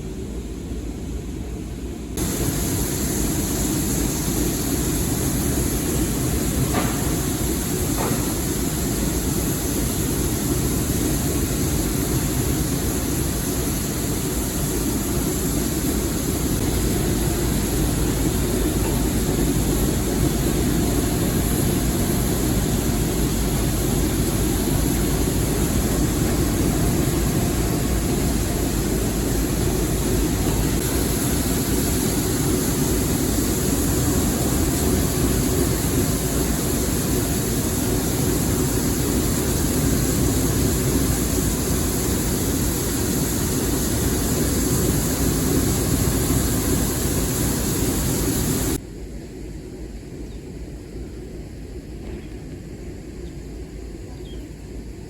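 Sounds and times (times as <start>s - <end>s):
moving train rumble and hiss: 0.0s - 55.0s.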